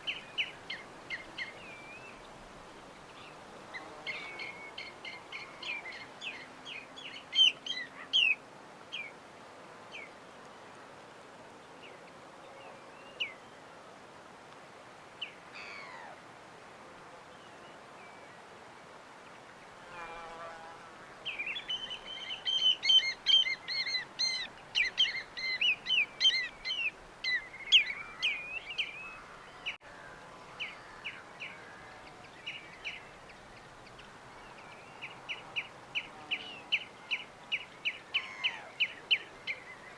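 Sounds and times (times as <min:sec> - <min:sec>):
faint steady hiss: 0:00.0 - 0:39.9
small birds chirping: 0:21.2 - 0:29.8.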